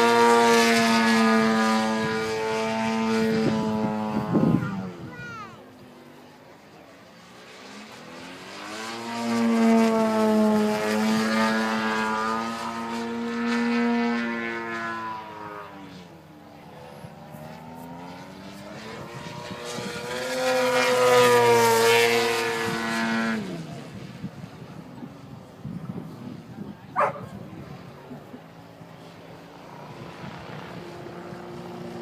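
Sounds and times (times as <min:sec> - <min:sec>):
model airplane engine buzzing: 0:00.0 - 0:32.0.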